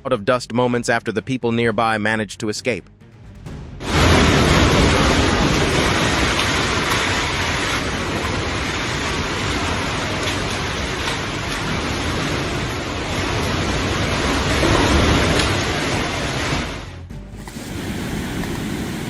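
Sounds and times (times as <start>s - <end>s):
fast-flowing water rushing: 3.9s - 19.0s.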